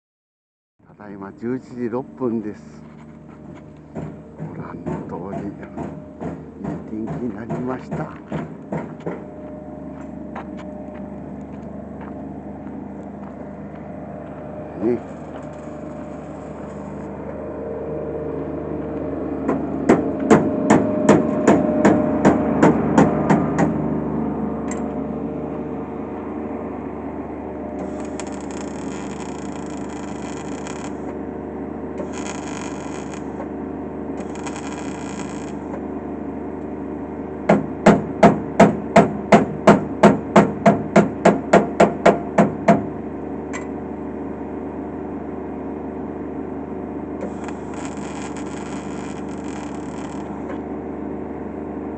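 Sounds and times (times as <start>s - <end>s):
steady hum: 0.8s - 51.9s
hammer striking sheet metal: 19.9s - 23.8s
welding hiss: 27.8s - 31.1s, 32.0s - 33.4s, 34.2s - 35.7s, 47.2s - 50.5s.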